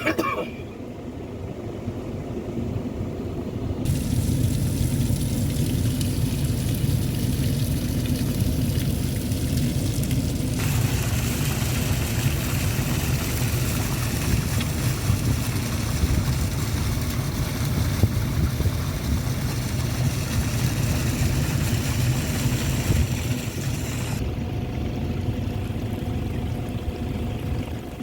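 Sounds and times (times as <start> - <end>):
floodwater rushing: 7.8 - 24.2.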